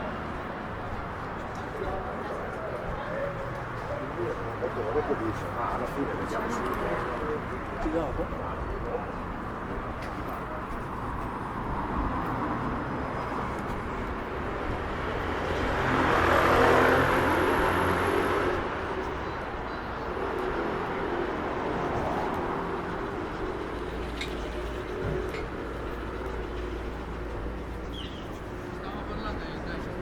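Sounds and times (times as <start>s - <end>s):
city street ambience: 0.0s - 30.0s
vehicle passing by: 14.8s - 19.2s.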